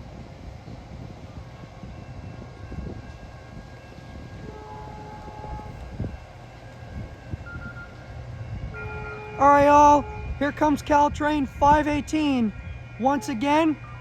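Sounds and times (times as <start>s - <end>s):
distant horn-like tone: 4.4s - 5.8s, 8.7s - 10.9s, 12.0s - 14.0s.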